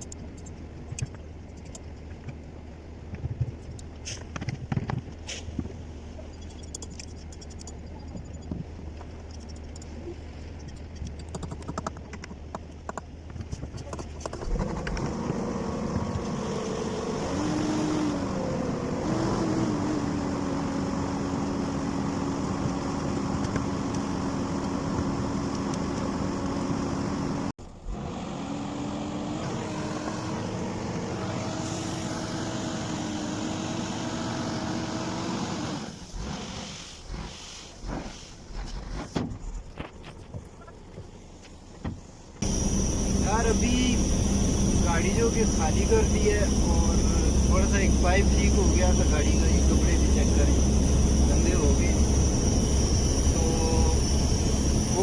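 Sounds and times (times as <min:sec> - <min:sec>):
truck diesel engine running: 0:29.4 - 0:35.2, 0:42.4 - 0:55.0.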